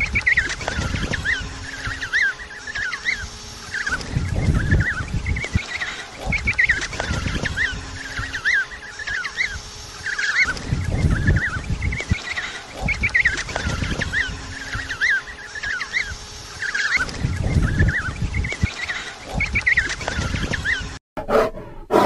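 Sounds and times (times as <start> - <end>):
birds chirping: 0.0 - 22.0
low rumbling noise: 3.2 - 8.4, 10.5 - 15.4.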